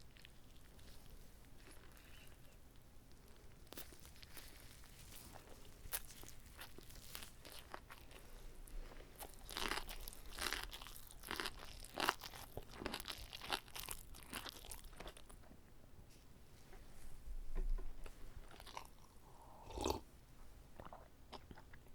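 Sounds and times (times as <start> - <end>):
crunchy chewing: 0.0 - 15.5, 18.4 - 20.1.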